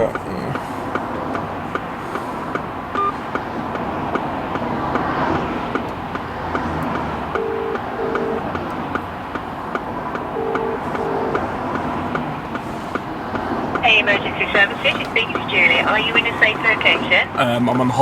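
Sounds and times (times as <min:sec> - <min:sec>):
light regular ticking: 0:00.0 - 0:13.9
car engine running: 0:00.0 - 0:18.0
phone double ring tone: 0:07.4 - 0:08.5, 0:10.4 - 0:11.4.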